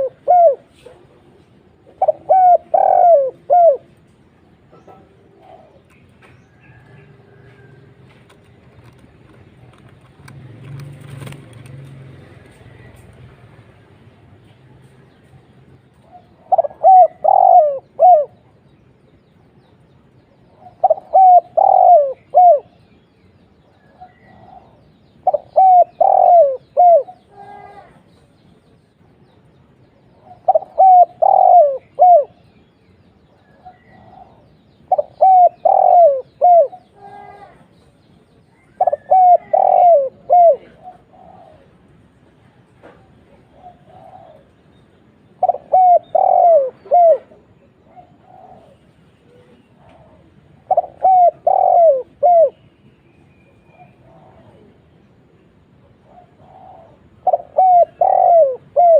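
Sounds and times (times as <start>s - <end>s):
dove cooing: 0.0s - 7.9s, 16.0s - 18.5s, 20.5s - 22.8s, 23.9s - 28.0s, 30.1s - 32.4s, 33.6s - 37.6s, 38.6s - 41.9s, 42.9s - 44.6s, 45.2s - 52.6s, 53.7s - 55.0s, 55.8s - 58.9s.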